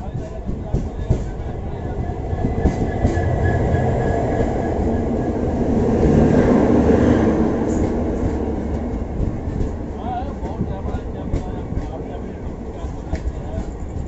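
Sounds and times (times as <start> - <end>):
train wheels rumbling: 0.0 - 14.0.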